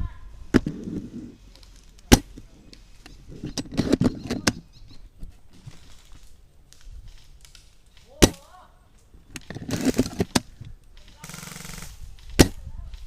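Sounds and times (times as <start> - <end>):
airsoft gun shots: 11.2 - 12.6.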